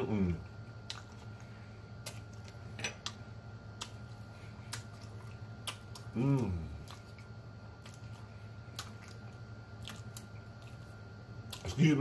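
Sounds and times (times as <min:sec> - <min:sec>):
wet mouth clicks and smacks: 0:04.7 - 0:06.1, 0:06.8 - 0:10.8
man humming mmm: 0:06.1 - 0:06.8.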